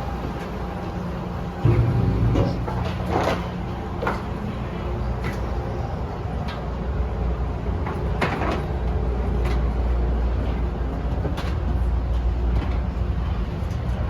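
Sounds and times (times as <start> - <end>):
airliner ambience rumble: 0.0 - 14.0
knocks and clicks: 1.7 - 3.5.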